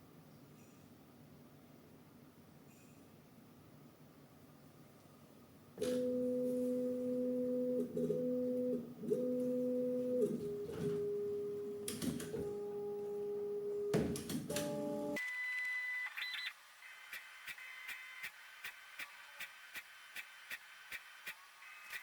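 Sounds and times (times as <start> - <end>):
printer stepper motors humming: 5.9 - 22.0.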